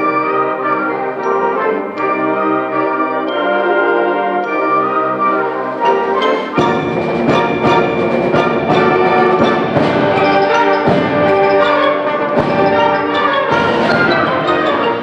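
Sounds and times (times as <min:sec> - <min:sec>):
mallet percussion: 0:00.0 - 0:15.0
symphonic band playing: 0:00.0 - 0:15.0
percussion hits: 0:05.5 - 0:15.0.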